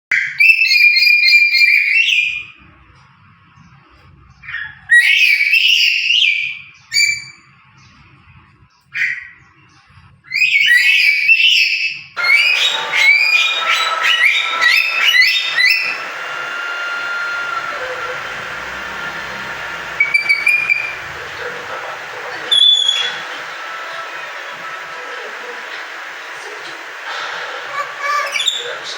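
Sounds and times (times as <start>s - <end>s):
parrot shrill whistled calls: 0.1s - 2.4s, 4.6s - 7.4s, 10.3s - 18.1s, 20.0s - 21.0s, 21.8s - 25.5s, 27.6s - 28.9s
parrot rapid chattering: 12.2s - 17.4s, 19.4s - 28.9s
steady hiss: 12.2s - 28.9s.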